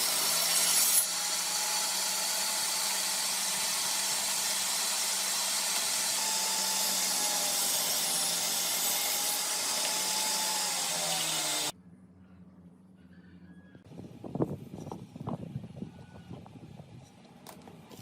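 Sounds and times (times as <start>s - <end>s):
electric power tool running: 0.0s - 11.7s.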